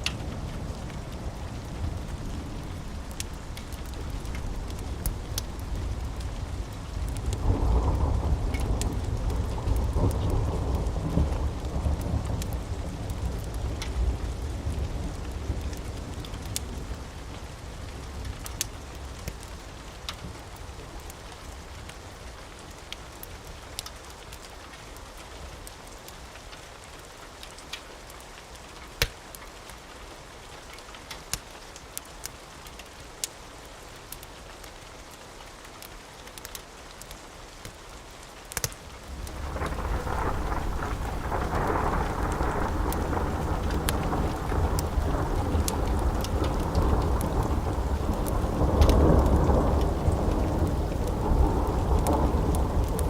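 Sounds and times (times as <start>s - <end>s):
steady rain: 0.0s - 53.0s
wood fire crackling: 0.0s - 53.0s
thunder rumbling: 0.1s - 16.2s, 39.0s - 53.0s.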